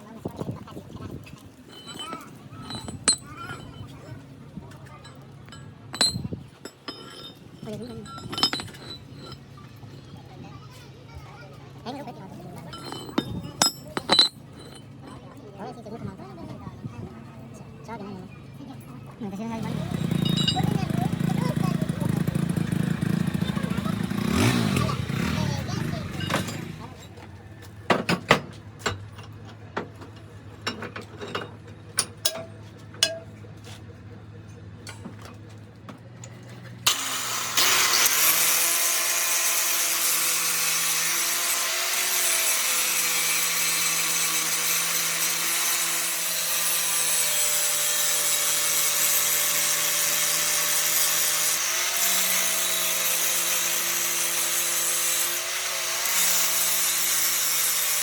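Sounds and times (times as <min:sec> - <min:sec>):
power tool grinding metal: 0:01.7 - 0:03.9, 0:06.9 - 0:09.5, 0:12.6 - 0:14.9, 0:19.5 - 0:27.2, 0:36.9 - 0:58.0.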